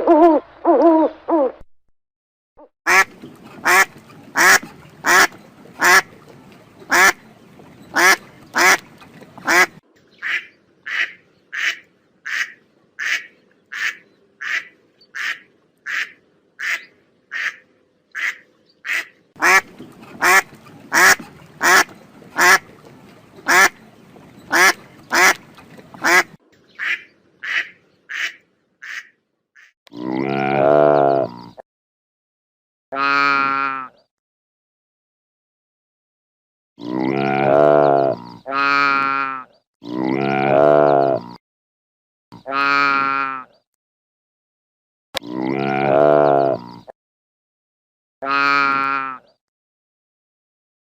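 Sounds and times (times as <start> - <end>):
duck quacking: 2.9 - 6.2, 6.9 - 7.2, 7.9 - 22.8, 23.4 - 23.8, 24.5 - 29.7, 33.0 - 34.0, 37.2 - 39.5, 42.4 - 43.6, 48.2 - 49.3.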